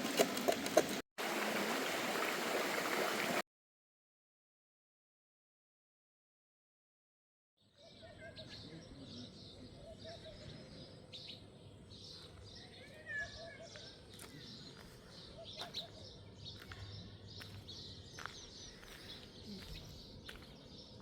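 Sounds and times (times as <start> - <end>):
small birds chirping: 7.6 - 21.0.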